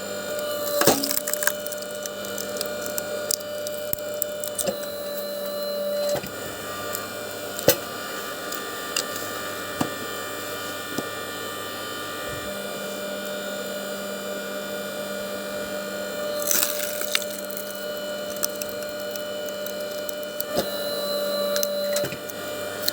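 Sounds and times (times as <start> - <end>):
power saw cutting wood: 0.0 - 22.9
wood splintering cracks: 0.4 - 4.8, 16.3 - 20.6.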